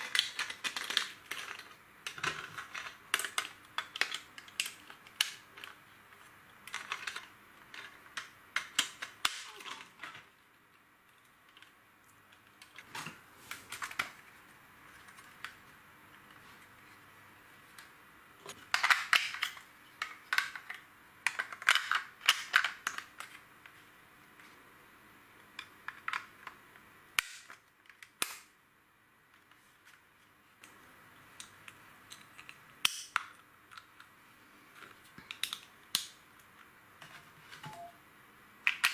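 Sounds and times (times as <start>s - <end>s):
plastic pieces clicking and clattering: 0.0s - 10.4s, 11.1s - 14.3s, 17.7s - 23.8s, 25.5s - 28.5s, 30.6s - 34.1s, 34.8s - 37.8s, 38.6s - 38.9s.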